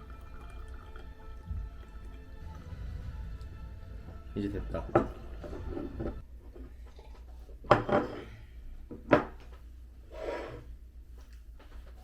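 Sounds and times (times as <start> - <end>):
low room hum: 0.0 - 12.0
tableware being handled: 7.7 - 8.3.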